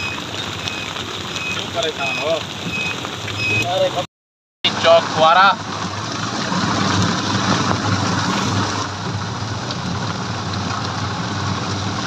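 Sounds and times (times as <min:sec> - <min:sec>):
heavy rain: 0:00.0 - 0:12.0
tyres on wet road: 0:00.0 - 0:12.0
motor rickshaw engine: 0:04.7 - 0:12.0.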